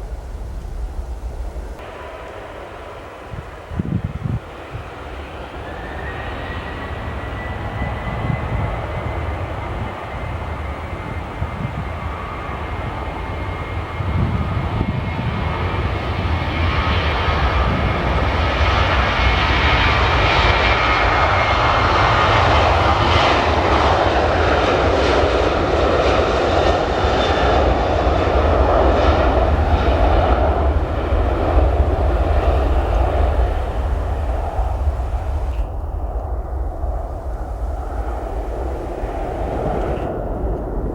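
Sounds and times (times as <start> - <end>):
jet engines roaring: 0.0 - 40.9.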